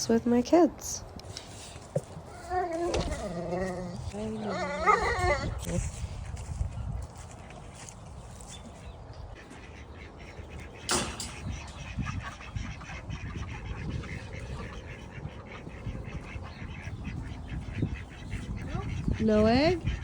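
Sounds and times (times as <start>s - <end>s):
ducks quacking: 7.0s - 20.0s.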